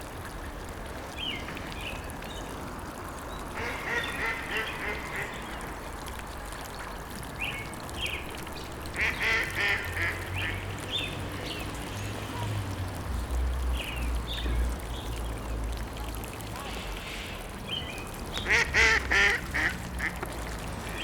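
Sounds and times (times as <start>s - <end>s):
ducks quacking: 3.6s - 5.8s, 9.0s - 10.7s, 18.4s - 20.4s.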